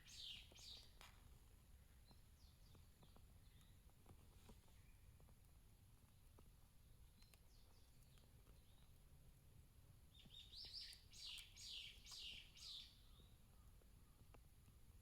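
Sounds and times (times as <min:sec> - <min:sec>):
songbird singing: 0:00.0 - 0:04.0, 0:06.0 - 0:09.0, 0:10.1 - 0:15.0.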